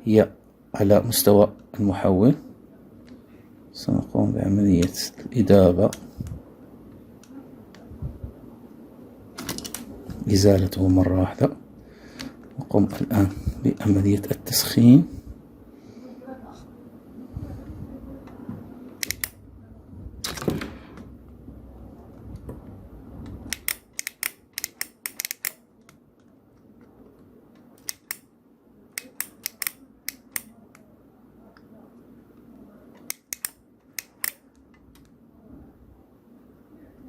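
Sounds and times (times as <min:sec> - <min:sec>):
hand tools clicking and tapping: 0:23.6 - 0:26.0, 0:29.0 - 0:30.5.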